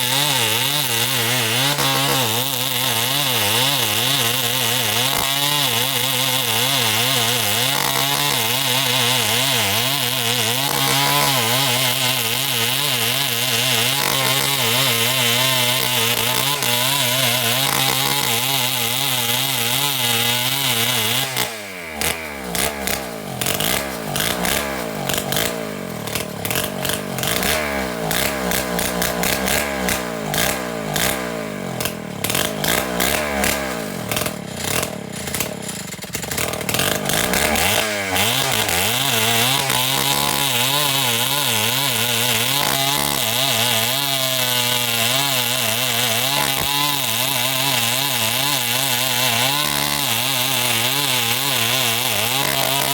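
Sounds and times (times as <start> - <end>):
chainsaw running: 0.0 - 52.9.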